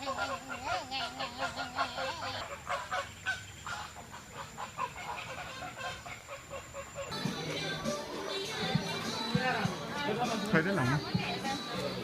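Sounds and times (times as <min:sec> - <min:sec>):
honking animal calls: 0:00.0 - 0:07.8.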